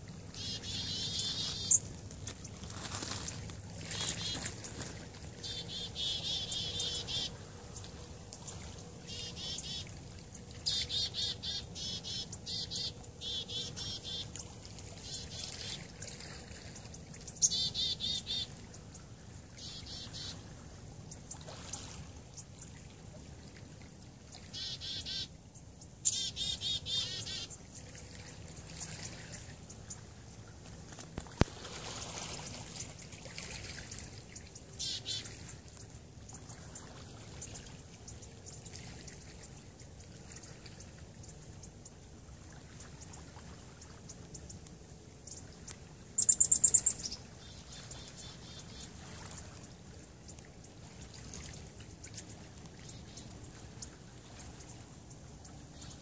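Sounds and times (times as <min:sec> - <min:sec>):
small birds chirping: 0:00.3 - 0:09.9, 0:10.6 - 0:15.8, 0:24.6 - 0:27.9, 0:46.2 - 0:48.9.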